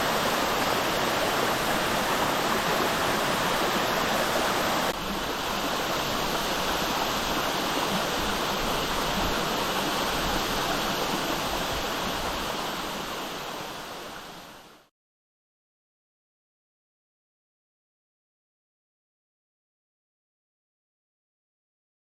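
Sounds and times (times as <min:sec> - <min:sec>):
waterfall rushing: 0:00.0 - 0:14.7.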